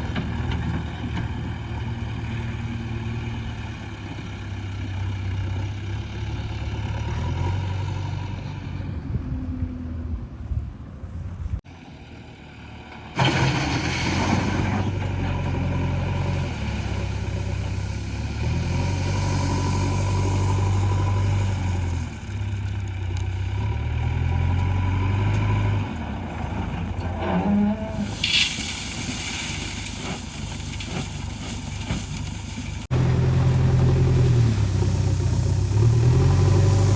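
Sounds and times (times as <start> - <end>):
heavy diesel engine working: 23.9 - 36.9.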